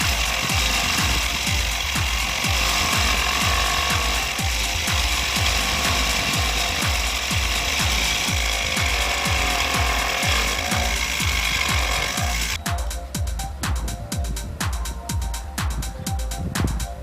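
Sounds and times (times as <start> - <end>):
drill press motor running: 0.0 - 12.6
music with thumping beat: 0.0 - 17.0.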